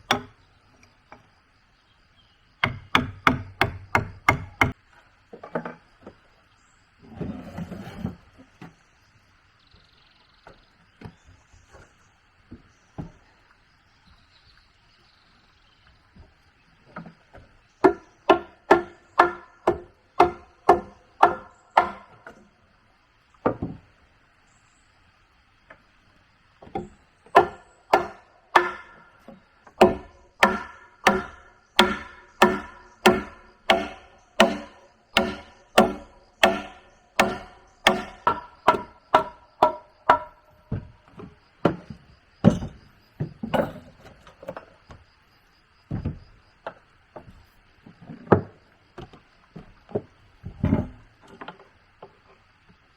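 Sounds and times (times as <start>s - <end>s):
tool knocking on wood: 2.6s - 4.8s, 17.8s - 22.4s, 26.6s - 45.0s, 45.9s - 47.5s.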